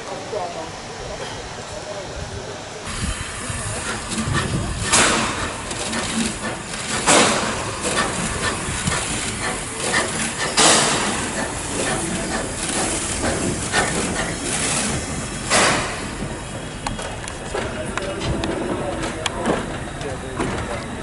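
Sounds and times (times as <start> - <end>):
train rushing noise: 0.0 - 21.0
steam hissing bursts: 2.8 - 17.5.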